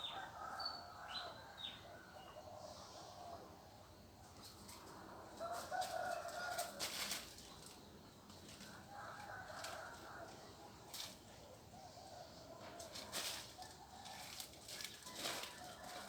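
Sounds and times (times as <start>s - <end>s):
rooster crowing: 0.0s - 2.7s, 5.4s - 7.2s, 8.7s - 10.6s, 12.1s - 16.0s.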